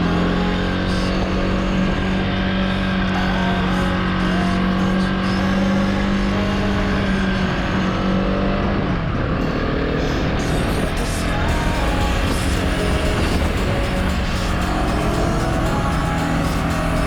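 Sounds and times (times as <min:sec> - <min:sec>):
motorcycle engine pulling: 0:00.0 - 0:17.0
road noise: 0:00.0 - 0:17.0
wind noise: 0:06.3 - 0:17.0.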